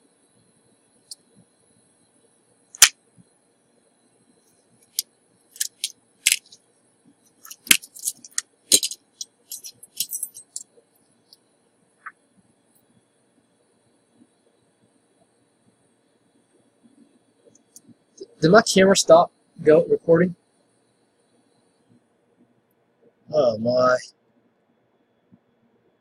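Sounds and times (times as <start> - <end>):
faint high-pitched whine: 0.0 - 26.0
metallic clicks of hand tools: 5.6 - 6.6, 7.4 - 10.6.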